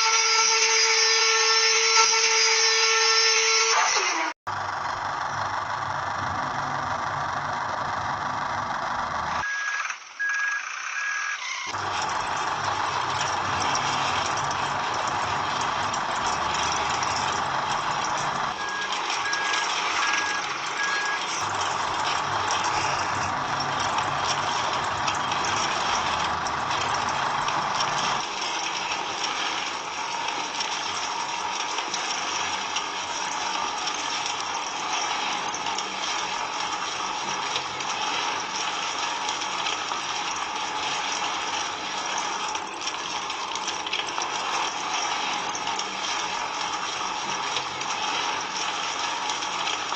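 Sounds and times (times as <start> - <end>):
small motor running: 0.0 - 49.9
high beeps: 18.6 - 21.4.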